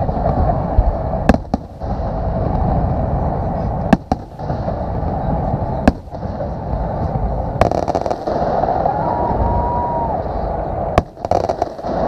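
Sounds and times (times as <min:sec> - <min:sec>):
fireworks bangs: 0:00.0 - 0:12.0
fireworks crackle: 0:00.0 - 0:12.0
low rumble of fireworks shells: 0:00.0 - 0:12.0
firework whistle: 0:04.4 - 0:12.0.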